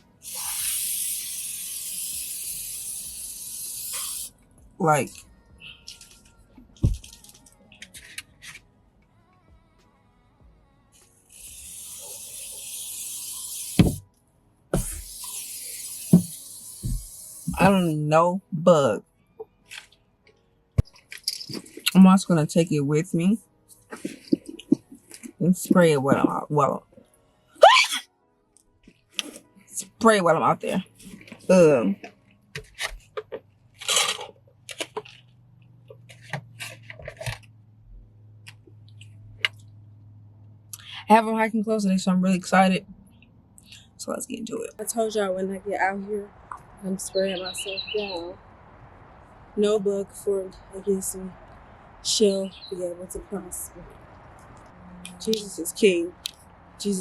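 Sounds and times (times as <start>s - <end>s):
aerosol spray hissing: 0.2s - 4.3s, 11.3s - 14.0s, 14.8s - 17.9s.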